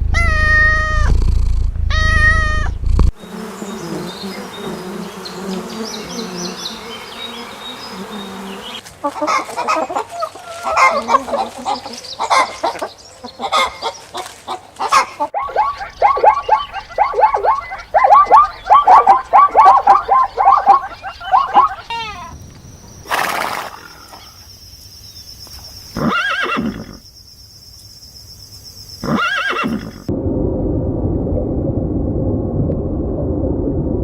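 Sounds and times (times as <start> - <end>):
rising and falling animal calls: 1.9 - 22.4
short honking animal calls: 15.4 - 22.3.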